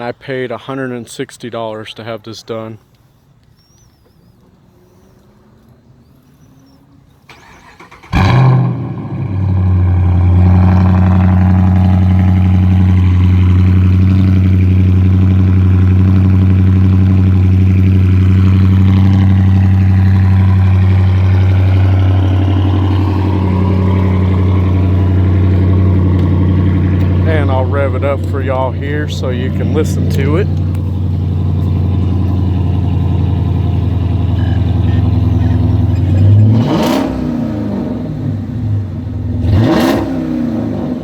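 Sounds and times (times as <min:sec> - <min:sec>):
car engine starting with a flare: 0:06.0 - 0:41.0
deep car engine idle: 0:07.3 - 0:39.6.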